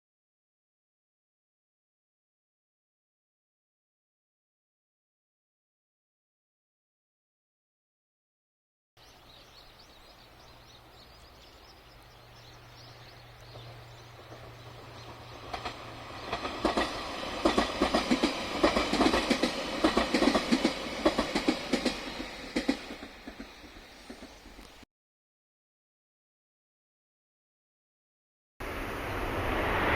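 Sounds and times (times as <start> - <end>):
train passing: 9.0 - 24.8, 28.6 - 29.9
wheels clattering over rail joints: 12.4 - 24.8.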